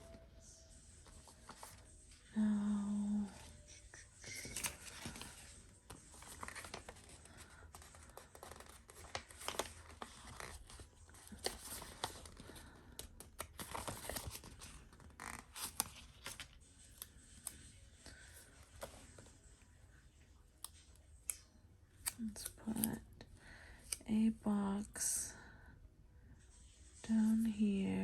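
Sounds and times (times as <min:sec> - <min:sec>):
paper rustling and crackling: 0:01.0 - 0:01.9, 0:04.2 - 0:19.4.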